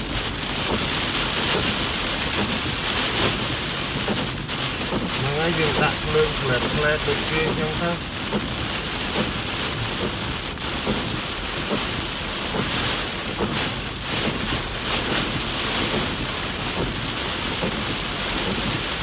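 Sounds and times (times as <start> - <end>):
heavy rain on car windshield: 0.0 - 19.0.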